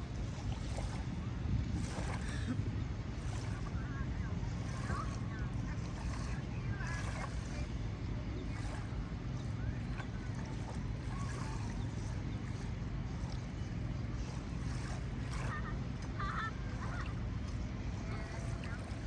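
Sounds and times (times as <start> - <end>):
low rumbling noise: 0.0 - 19.0.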